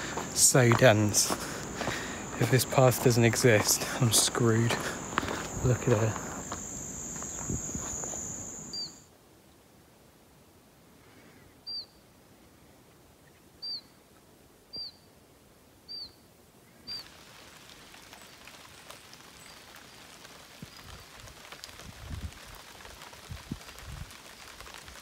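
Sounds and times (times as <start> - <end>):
outdoor ambience hiss: 0.0 - 25.0
bird chirping: 7.1 - 9.0.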